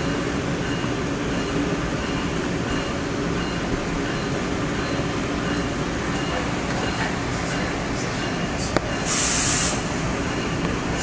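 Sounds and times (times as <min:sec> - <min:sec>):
railcar rumble and hum: 0:00.0 - 0:11.0.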